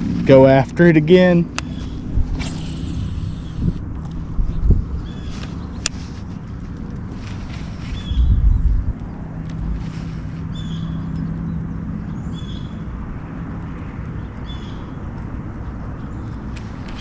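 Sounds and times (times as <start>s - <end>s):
low hum: 0.0s - 12.2s
wind and water hiss: 1.5s - 11.0s.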